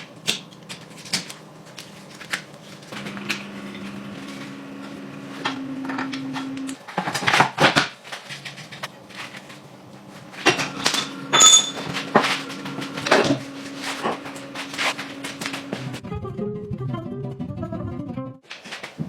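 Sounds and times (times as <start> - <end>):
steady low hum: 8.7 - 16.0.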